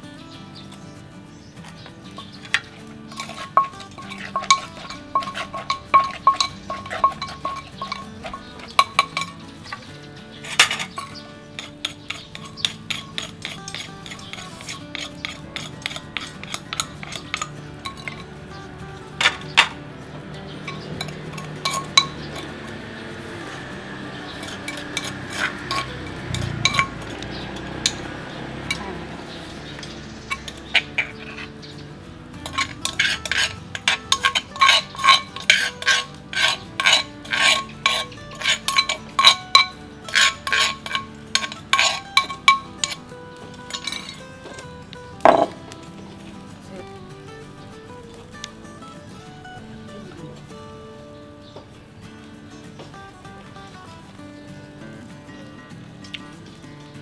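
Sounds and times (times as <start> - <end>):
metal utensils clinking on dishes: 0.0 - 57.0
pestle knocking in mortar: 1.6 - 31.8, 32.4 - 45.8.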